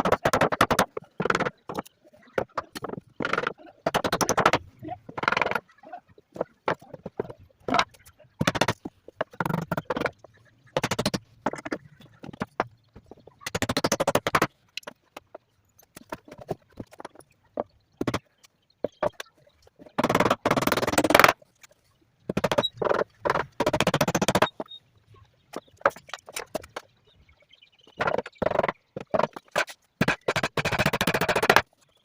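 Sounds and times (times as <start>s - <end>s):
rapid clicking bursts: 0.0s - 4.6s, 13.4s - 14.5s, 19.9s - 21.4s, 22.3s - 24.7s, 28.0s - 31.7s.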